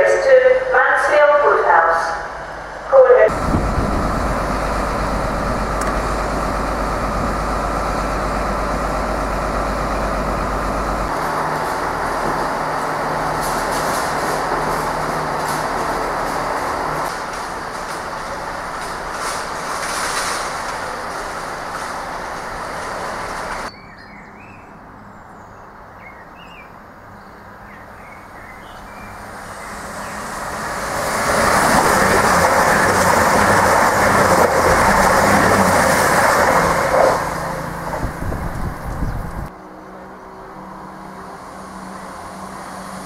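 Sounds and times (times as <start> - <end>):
passenger train passing: 0.0 - 23.7, 28.2 - 43.0
diesel engine running: 2.4 - 23.7, 29.1 - 39.5
soft birdsong: 23.7 - 30.4, 38.5 - 40.5.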